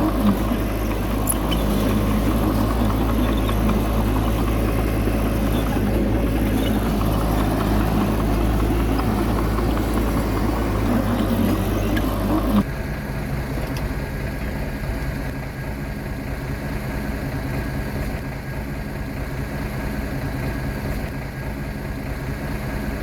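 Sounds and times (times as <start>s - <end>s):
bulldozer diesel engine droning: 0.0s - 23.0s.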